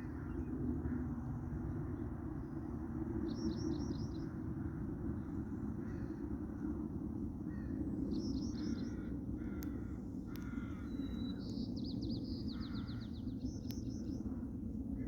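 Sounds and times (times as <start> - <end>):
birds chirping and calling: 8.2 - 14.2.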